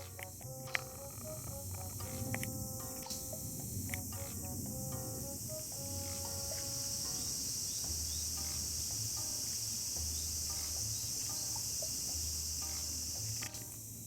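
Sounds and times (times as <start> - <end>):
quiet plucked music with bass: 0.0 - 13.9
insects chirring: 0.0 - 14.0.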